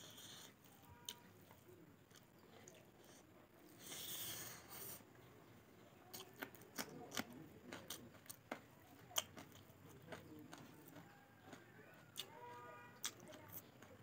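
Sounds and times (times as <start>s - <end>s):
wet chewing and lip smacking: 6.1s - 12.3s, 13.0s - 14.0s.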